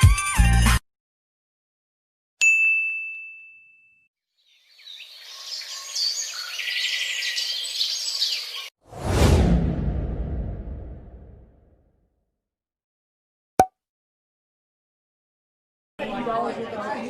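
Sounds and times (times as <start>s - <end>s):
bell ding: 2.4s - 4.1s
birds chirping: 4.4s - 8.7s.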